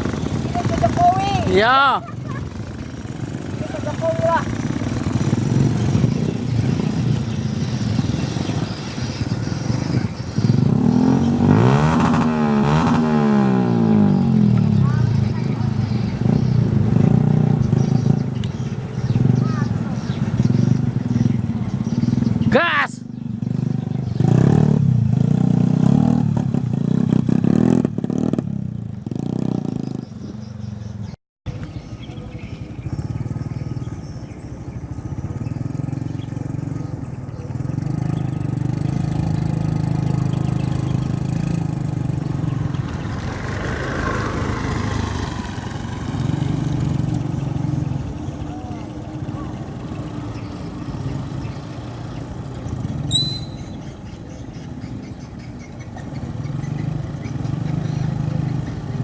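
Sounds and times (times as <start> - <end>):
diesel truck engine revving: 2.8 - 18.3, 37.6 - 53.1.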